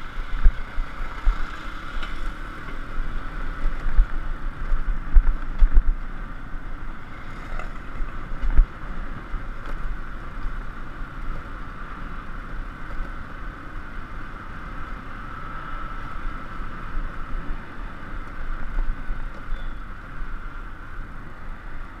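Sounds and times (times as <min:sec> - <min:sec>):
motorbike engine riding: 0:00.0 - 0:22.0
road noise: 0:00.0 - 0:22.0.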